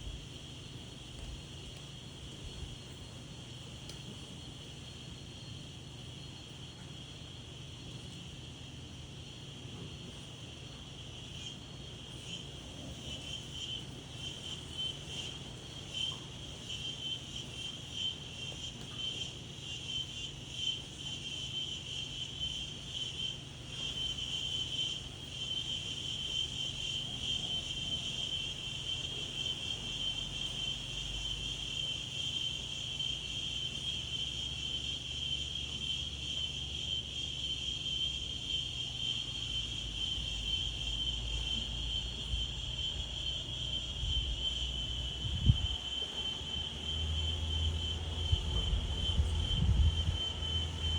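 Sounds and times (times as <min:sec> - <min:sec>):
insects trilling: 0:00.0 - 0:50.9
low rumble of wind: 0:40.2 - 0:50.9.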